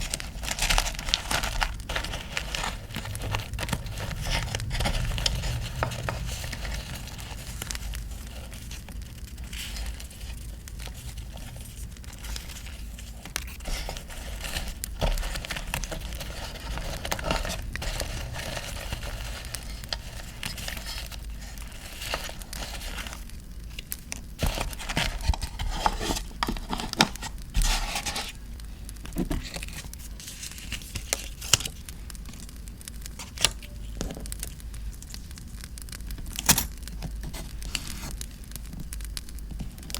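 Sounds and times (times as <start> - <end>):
campfire crackling: 0.0 - 13.8, 31.8 - 33.6, 34.2 - 37.0
paper crinkling and tearing: 0.0 - 39.9.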